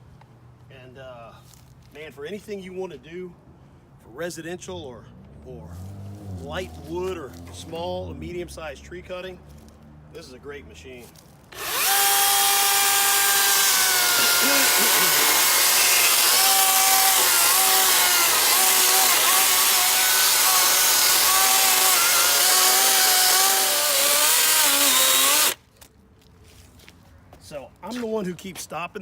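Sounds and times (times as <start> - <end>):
chainsaw cutting log: 11.5 - 25.6.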